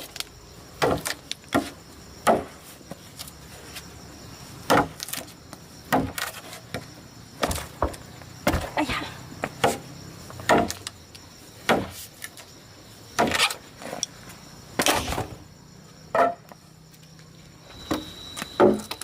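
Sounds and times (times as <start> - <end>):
axe chopping firewood: 0.8 - 2.6, 4.7 - 5.3, 5.9 - 6.4, 9.5 - 9.8, 10.4 - 10.9, 11.6 - 12.1, 13.2 - 13.6, 16.1 - 16.5.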